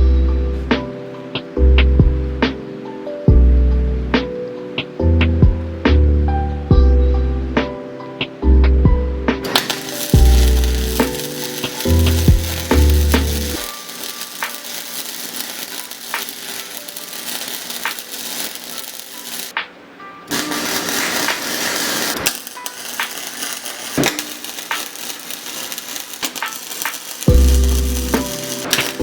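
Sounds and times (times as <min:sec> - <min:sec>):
lofi music with bass beat: 0:00.0 - 0:09.5, 0:12.0 - 0:13.6, 0:27.3 - 0:29.0
electric arc welding crackling: 0:09.4 - 0:19.6, 0:20.3 - 0:29.0.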